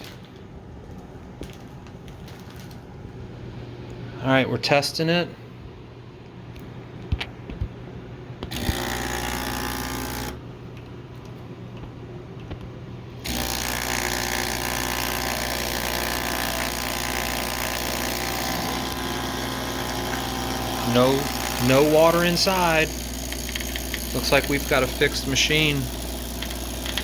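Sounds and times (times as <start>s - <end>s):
espresso machine pump buzzing: 8.4s - 10.4s, 13.2s - 27.0s.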